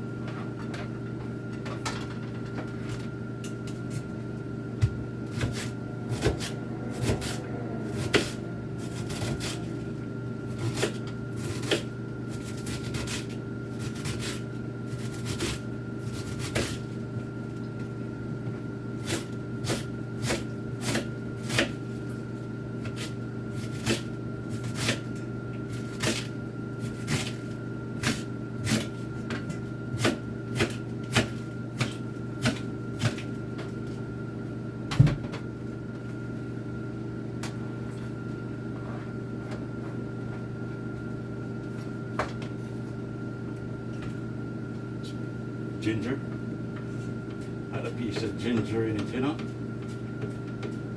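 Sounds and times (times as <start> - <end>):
kitchen hum: 0.0 - 50.9
knife chopping cabbage: 4.8 - 9.8, 10.5 - 16.9, 19.0 - 22.0, 22.8 - 25.1, 25.7 - 29.0, 29.9 - 33.4.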